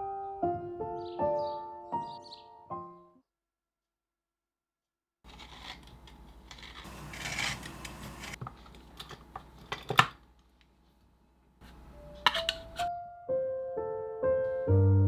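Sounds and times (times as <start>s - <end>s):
rustling: 5.3s - 12.9s
clicks and clinks of hard objects: 12.1s - 12.9s.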